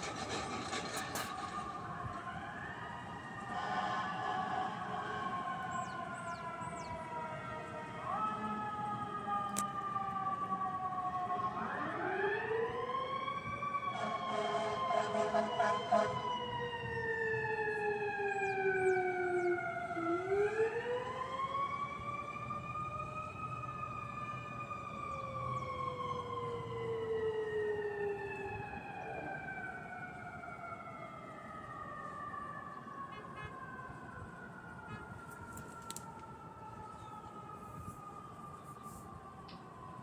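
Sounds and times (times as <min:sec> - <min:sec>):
fire siren wailing: 0:00.0 - 0:40.0
short siren blasts: 0:13.7 - 0:21.1, 0:33.1 - 0:34.0, 0:34.8 - 0:40.0.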